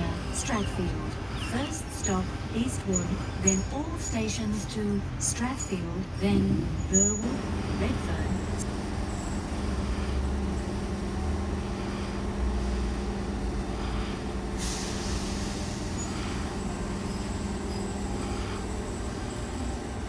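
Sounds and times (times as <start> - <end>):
train equipment humming: 0.0 - 20.0
air hiss: 14.6 - 19.2.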